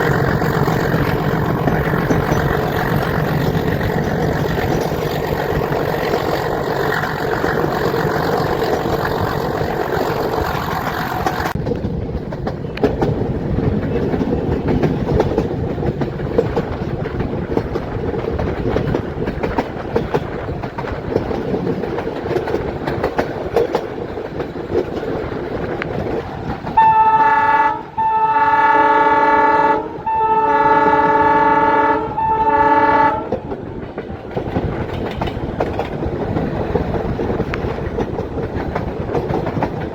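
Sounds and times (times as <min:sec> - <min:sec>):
train coaches running: 0:00.0 - 0:39.9
locomotive horn blasts: 0:26.8 - 0:33.4.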